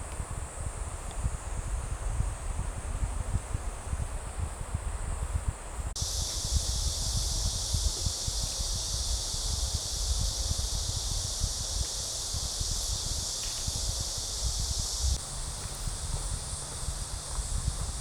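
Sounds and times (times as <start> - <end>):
cicadas droning: 0.0 - 18.0
wind rumbling on microphone: 0.0 - 18.0.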